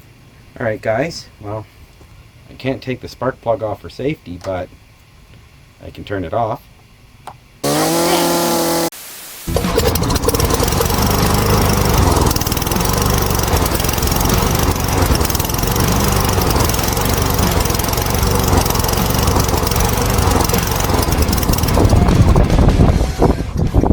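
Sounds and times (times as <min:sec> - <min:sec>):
chainsaw engine running: 0:07.6 - 0:08.9, 0:09.5 - 0:23.3.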